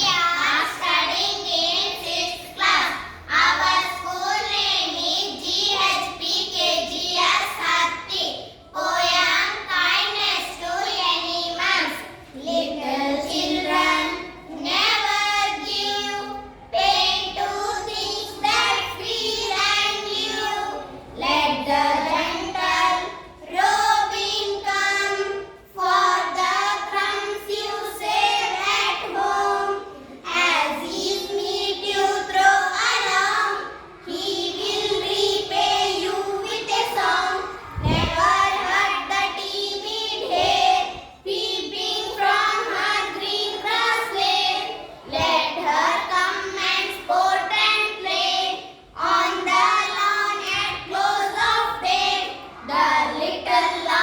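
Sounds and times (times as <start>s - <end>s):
child singing a rhyme: 0.0s - 54.0s
low thump: 37.8s - 38.4s.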